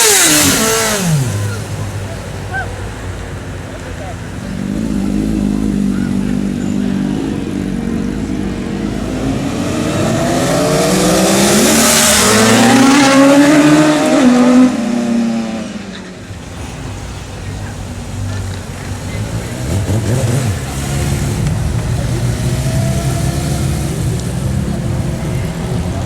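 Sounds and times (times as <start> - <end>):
motorcycle accelerating past: 0.0 - 1.7, 4.5 - 15.8, 19.4 - 25.2.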